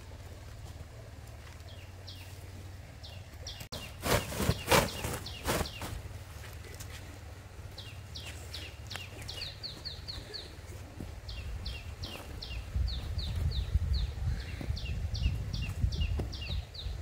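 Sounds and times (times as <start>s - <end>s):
bird calling: 1.6s - 6.0s.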